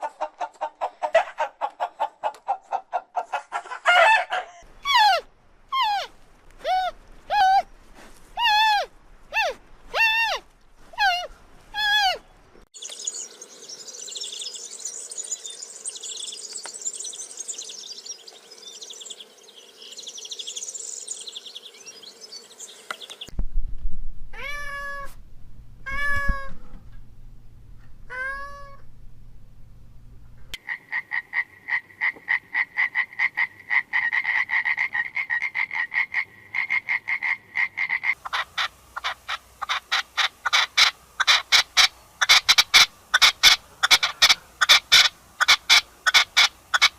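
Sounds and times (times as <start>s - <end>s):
high-pitched animal chirping: 4.5s - 7.7s, 8.4s - 10.4s, 11.0s - 12.2s
drawn-out rising and falling calls: 8.4s - 23.3s, 30.6s - 46.9s
rapid pulsed animal calls: 30.6s - 46.9s.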